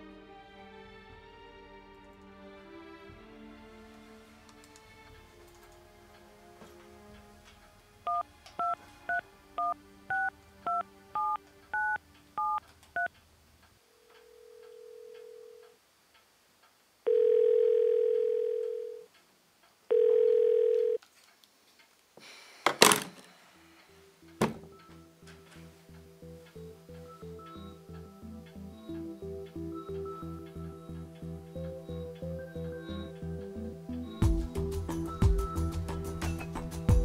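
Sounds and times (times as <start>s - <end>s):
telephone line tone: 8.1s - 13.1s, 14.0s - 15.7s, 17.1s - 19.1s, 19.9s - 21.0s, 26.9s - 34.2s
keypad two-tone beeps: 9.6s - 13.1s
phone knocking on wooden table: 24.4s - 24.7s.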